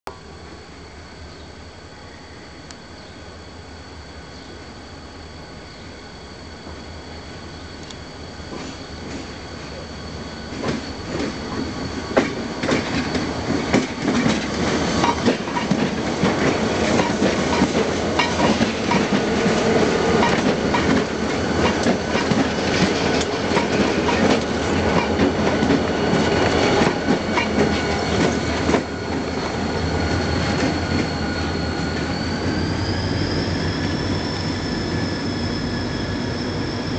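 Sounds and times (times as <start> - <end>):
diesel locomotive engines working: 0.1 - 36.9
wheels clicking over rail joints: 12.2 - 19.3, 20.1 - 25.9.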